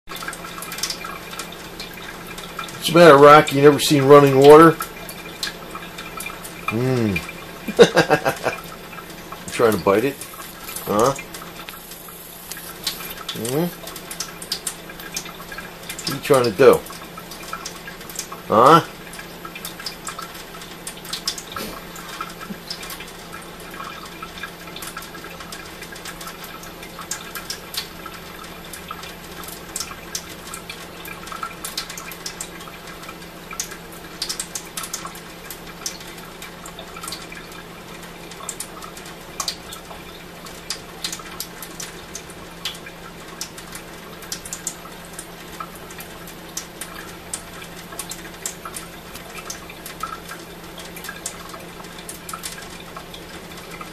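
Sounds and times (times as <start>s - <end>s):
faucet water trickling: 0.1s - 53.9s.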